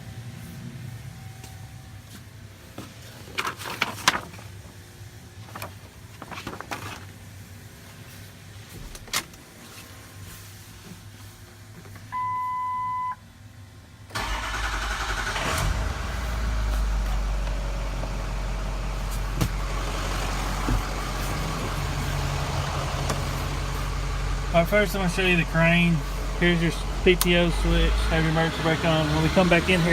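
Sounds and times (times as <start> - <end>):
diesel engine starting and idling: 14.0 - 29.9.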